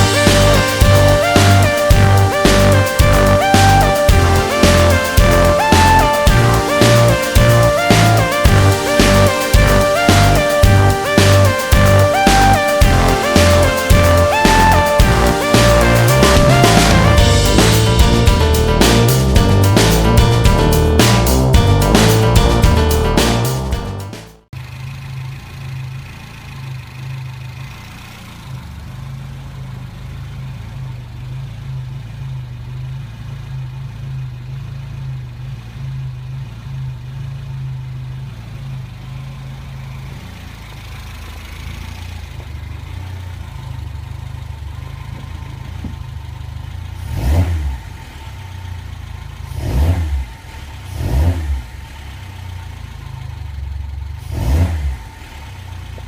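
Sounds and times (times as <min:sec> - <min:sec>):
small engine idling: 0:24.6 - 0:56.0.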